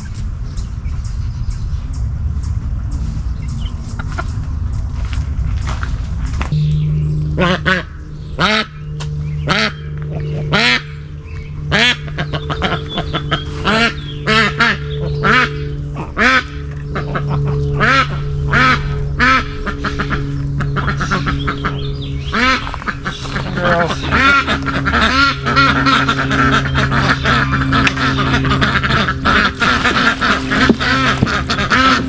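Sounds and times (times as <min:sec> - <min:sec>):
low background tone: 0:06.1 - 0:29.6
duck quacking: 0:07.4 - 0:08.8, 0:09.5 - 0:11.0, 0:11.7 - 0:32.0.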